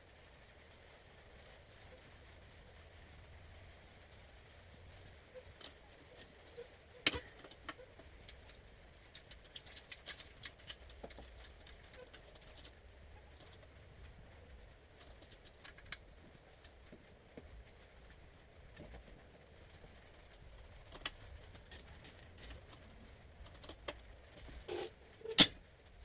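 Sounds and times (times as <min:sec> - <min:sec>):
metallic clicks and knocks from tools: 0:07.1 - 0:08.6, 0:23.5 - 0:25.6.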